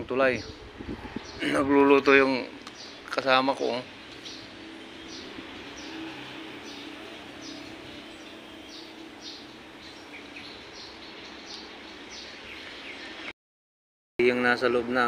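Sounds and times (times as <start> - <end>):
outdoor background noise: 0.0 - 13.3, 14.2 - 15.0
bird chirping: 0.2 - 13.3.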